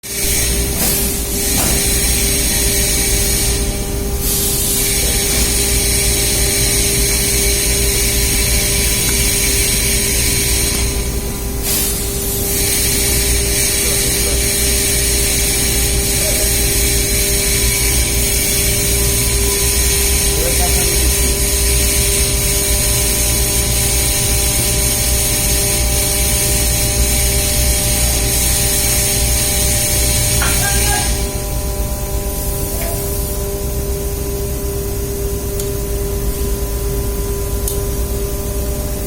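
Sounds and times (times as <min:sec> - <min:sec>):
machinery drone: 0:00.0 - 0:39.0.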